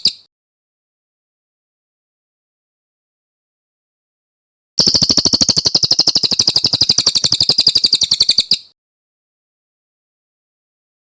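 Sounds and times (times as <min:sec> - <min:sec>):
bird singing fast trill: 0:04.8 - 0:08.8.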